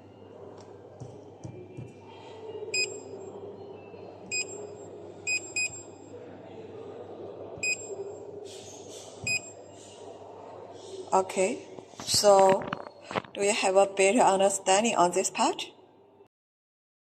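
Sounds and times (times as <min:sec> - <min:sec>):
touchscreen beeps: 0:02.7 - 0:03.2, 0:04.3 - 0:06.0, 0:07.6 - 0:08.0, 0:09.3 - 0:09.6.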